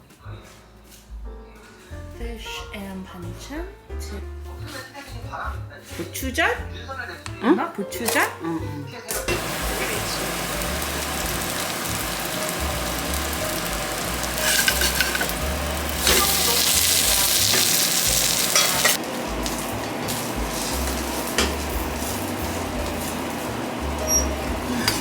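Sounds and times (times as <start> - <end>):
food sizzling in hot oil: 9.3 - 25.0.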